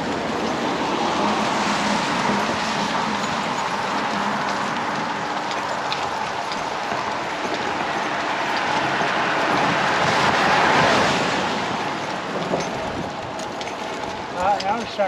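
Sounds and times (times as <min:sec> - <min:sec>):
vehicle passing by: 0:08.0 - 0:12.2.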